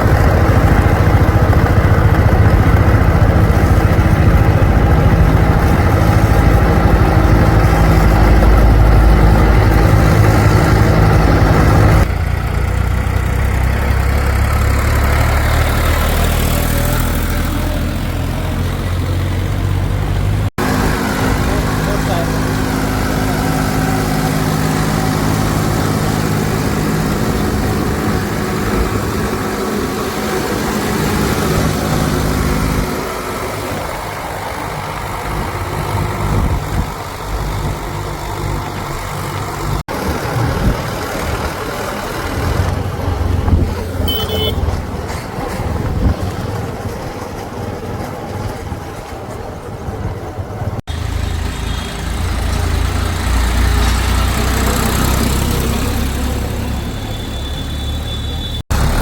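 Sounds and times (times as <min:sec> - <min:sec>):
diesel engines running: 0:00.0 - 0:59.0.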